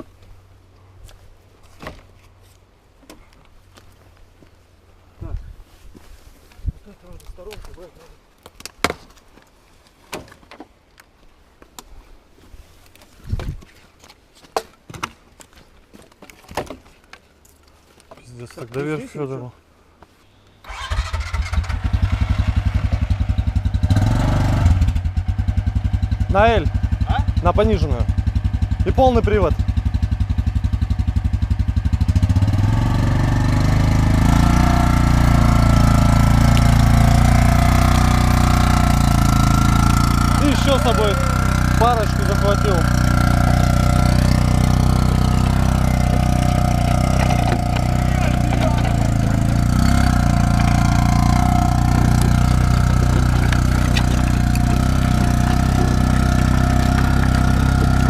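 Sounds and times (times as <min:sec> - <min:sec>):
dry wood knocking and thudding: 0:01.8 - 0:02.1, 0:16.0 - 0:17.0, 0:45.8 - 0:49.7, 0:50.5 - 0:58.0
quad bike engine revving: 0:20.7 - 0:58.0.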